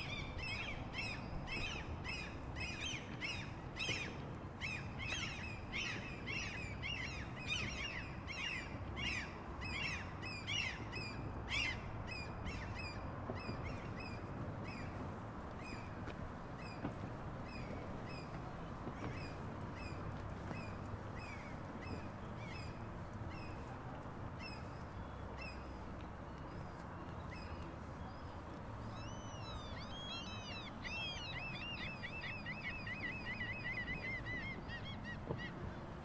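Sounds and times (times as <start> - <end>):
low outdoor rumble: 0.0 - 36.0
birds chirping: 24.4 - 35.7.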